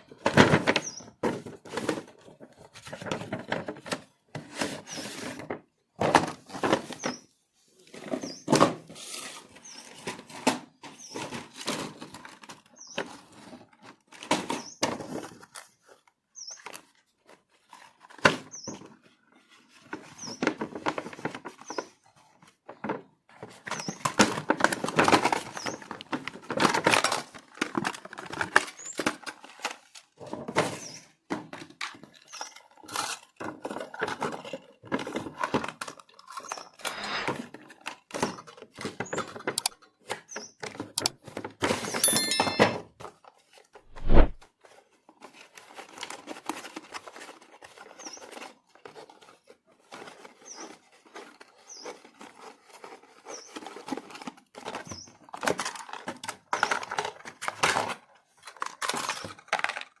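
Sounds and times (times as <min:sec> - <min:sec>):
plastic packaging rustling: 0:43.2 - 1:00.0.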